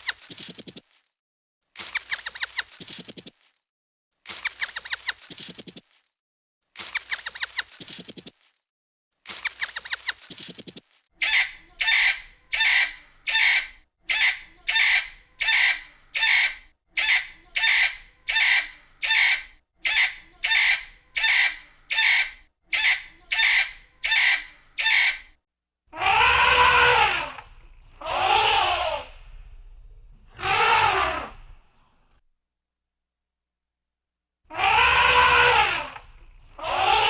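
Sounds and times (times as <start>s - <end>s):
fowl rattle call: 11.2s - 25.2s
fowl rising and falling calls: 28.0s - 29.1s.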